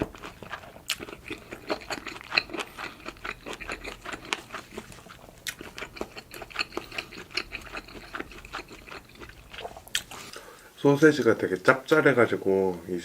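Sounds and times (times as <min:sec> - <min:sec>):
wet mouth chewing: 0:00.0 - 0:10.4.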